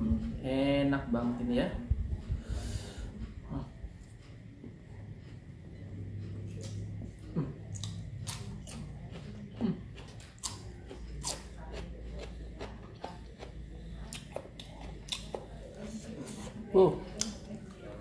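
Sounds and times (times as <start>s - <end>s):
crisp cucumber crunching: 7.7s - 15.6s.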